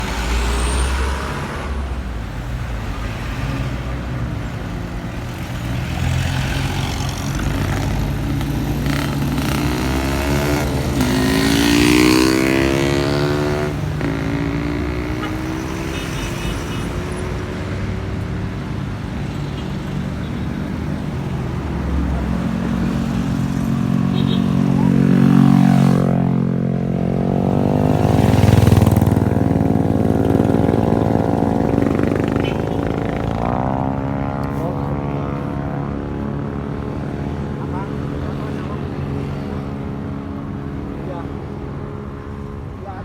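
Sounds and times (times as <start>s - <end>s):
traffic engines running: 0.0s - 43.0s
vehicle accelerating past: 5.4s - 16.0s.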